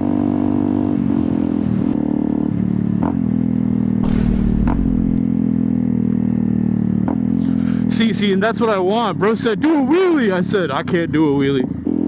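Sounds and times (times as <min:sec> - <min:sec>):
rush of noise: 0:04.0 - 0:05.4.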